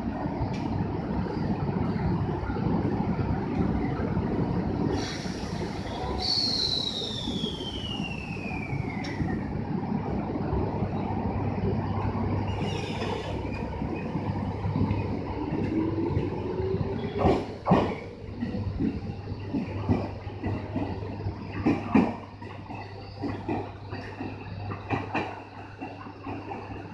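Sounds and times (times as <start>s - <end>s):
train running rumble: 0.0s - 26.9s
wheels clacking over rail joint: 17.0s - 20.9s.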